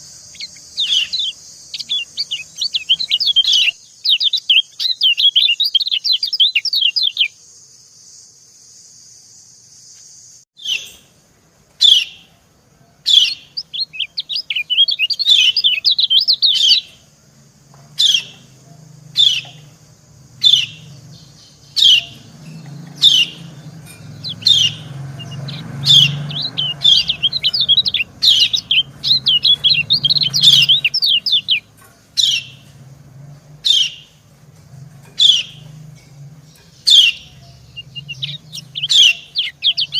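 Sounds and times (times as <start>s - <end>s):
bird chips: 0.0s - 7.4s, 13.1s - 39.9s
high bird twittering: 0.0s - 7.4s, 13.1s - 17.1s, 18.0s - 32.7s, 33.6s - 34.2s, 35.0s - 39.9s.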